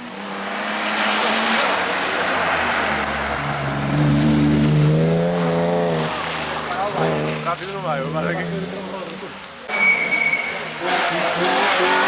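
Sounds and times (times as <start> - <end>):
rally car engine at high revs: 0.0 - 9.4, 10.5 - 12.0.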